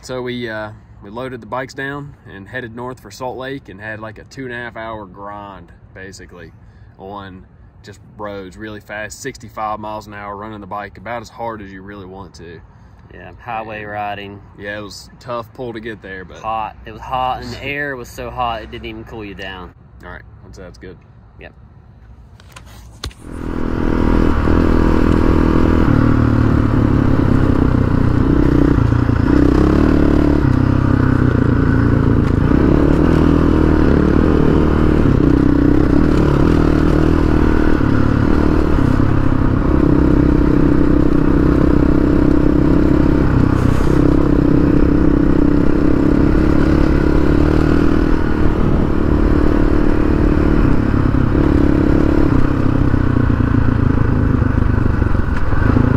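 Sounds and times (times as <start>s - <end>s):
motorcycle engine revving: 23.2s - 55.9s.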